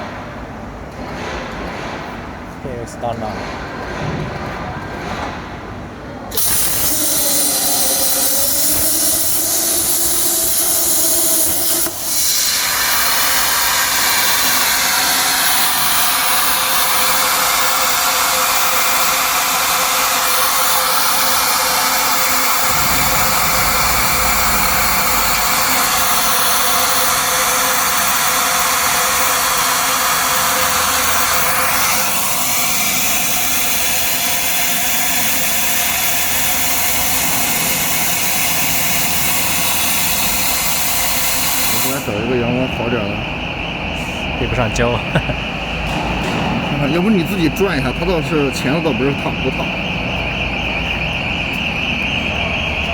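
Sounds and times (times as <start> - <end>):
plasma torch hissing: 6.3 - 42.2.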